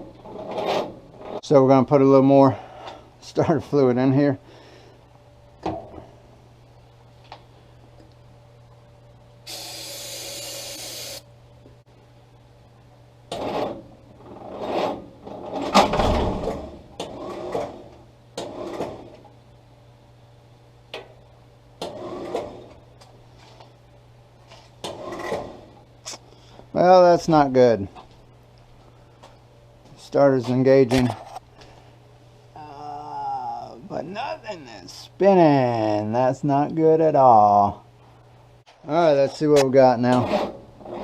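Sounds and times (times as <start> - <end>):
aerosol can hissing: 9.5 - 11.2.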